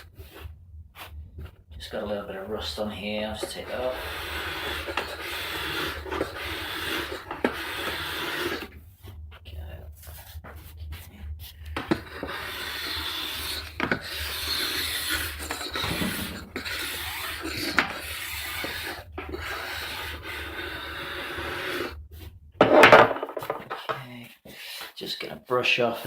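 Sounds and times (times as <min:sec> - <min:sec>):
metal file rasping on steel edge: 0:02.6 - 0:08.7, 0:11.8 - 0:21.9.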